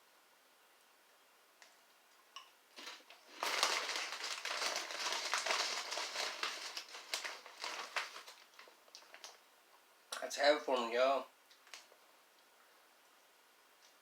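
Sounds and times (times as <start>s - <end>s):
plastic snack bag crinkling: 2.7s - 9.4s.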